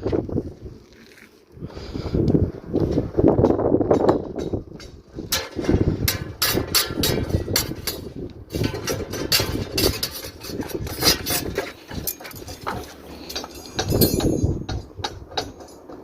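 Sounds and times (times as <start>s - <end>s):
hand tools knocking and clattering: 3.4s - 16.0s.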